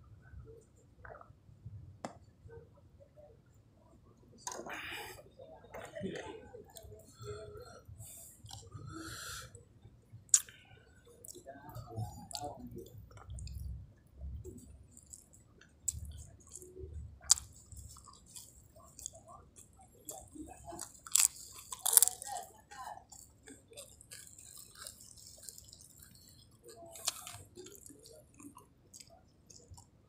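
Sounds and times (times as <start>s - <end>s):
person chewing food: 6.7s - 9.6s, 10.3s - 13.8s, 14.4s - 30.0s
sharp mouth clicks: 10.3s - 10.6s.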